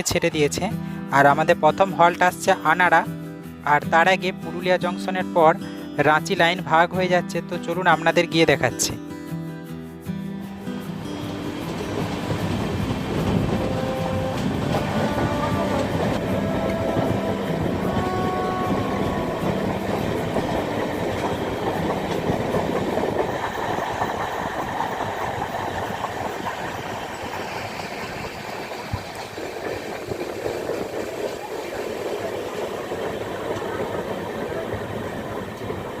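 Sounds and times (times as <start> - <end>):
train wheels clattering: 10.5 - 36.0.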